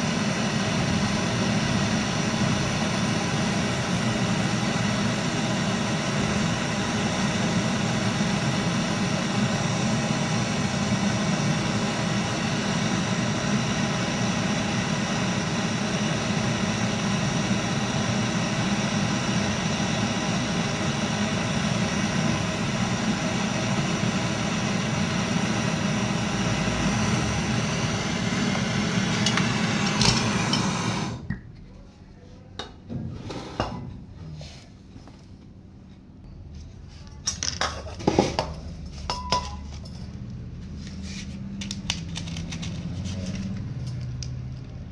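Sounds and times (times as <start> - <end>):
machine motor humming and whining: 0.0 - 31.2.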